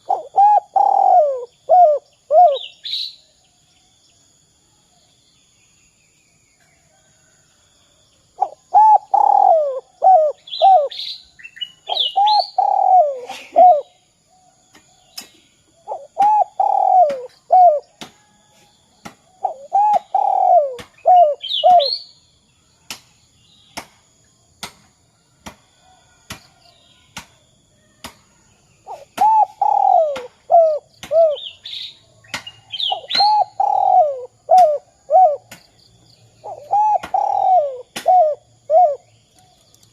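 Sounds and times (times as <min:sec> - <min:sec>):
dove cooing: 0:00.0 - 0:02.7, 0:08.4 - 0:11.0, 0:11.9 - 0:13.9, 0:15.8 - 0:17.9, 0:19.4 - 0:22.0, 0:28.9 - 0:31.5, 0:32.9 - 0:35.5, 0:36.4 - 0:39.1.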